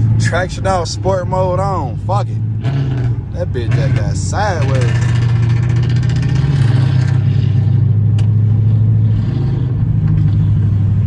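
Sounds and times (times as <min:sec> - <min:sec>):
car engine drone in cabin: 0:00.0 - 0:11.0.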